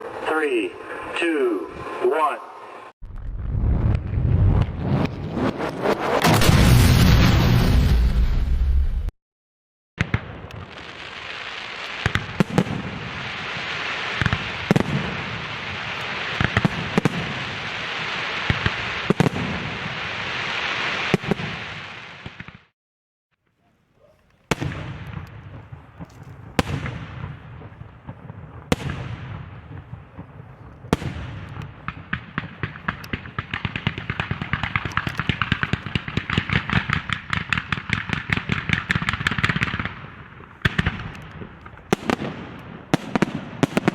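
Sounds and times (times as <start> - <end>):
fireworks crackling: 10.0 - 22.7, 23.7 - 43.9
rapid volley of firework bangs: 10.0 - 22.7, 24.5 - 43.9.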